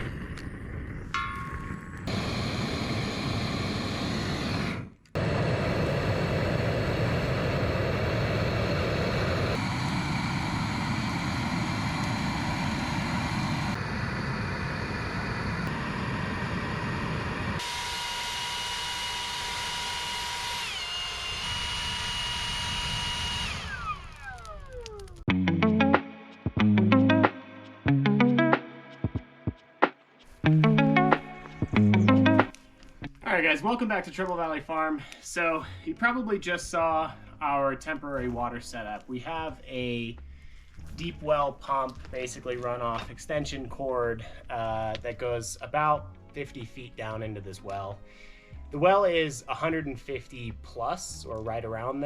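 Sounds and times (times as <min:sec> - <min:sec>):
motor whine winding down: 0:01.9 - 0:25.3
machine motor running: 0:02.1 - 0:25.2.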